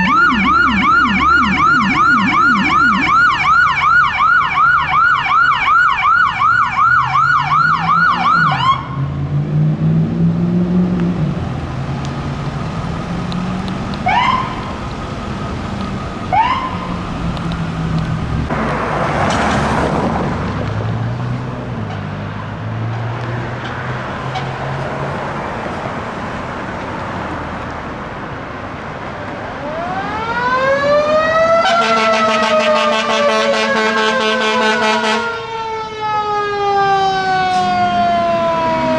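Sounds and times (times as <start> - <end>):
engine rumble: 0.0 - 6.1, 9.2 - 32.7
electronic siren yelping: 0.0 - 9.0, 12.2 - 18.5, 29.5 - 38.9
siren whoops: 0.0 - 9.1, 12.1 - 18.5, 29.5 - 38.9
loud vehicle horn: 31.5 - 35.4.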